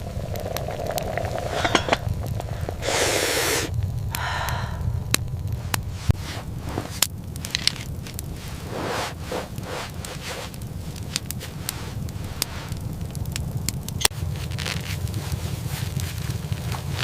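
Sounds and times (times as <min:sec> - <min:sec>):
steady low rumble: 0:00.0 - 0:17.0
sharp clicks and crackles: 0:05.1 - 0:17.0.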